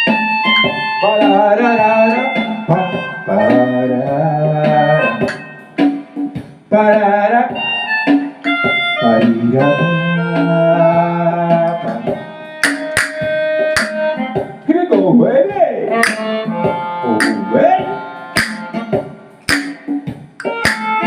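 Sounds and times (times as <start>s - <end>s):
musical accompaniment: 0.0s - 21.0s
melodica melody: 16.0s - 18.8s.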